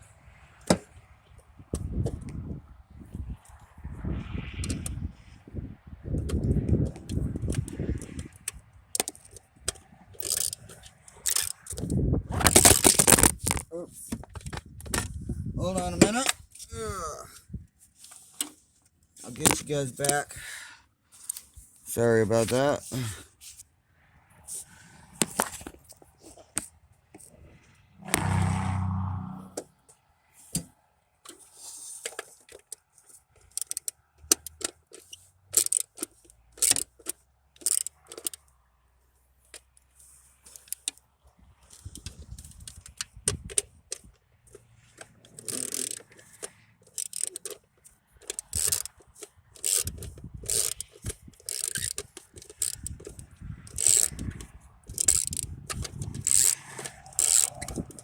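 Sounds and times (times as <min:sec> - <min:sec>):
hard objects clicking and scraping: 0:06.2 - 0:18.6, 0:19.2 - 0:20.3, 0:24.5 - 0:28.4, 0:29.5 - 0:38.6, 0:39.4 - 0:41.0, 0:41.6 - 0:58.0.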